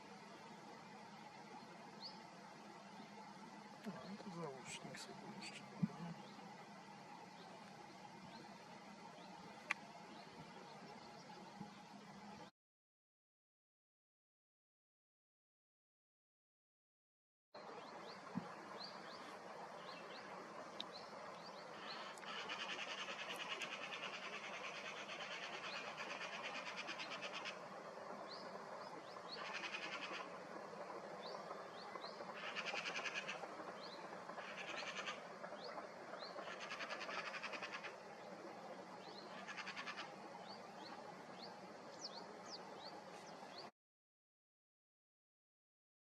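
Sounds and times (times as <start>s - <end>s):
birds chirping: 3.8s - 12.4s, 17.6s - 43.7s
buzzy bird trills: 31.4s - 38.0s, 39.3s - 40.1s.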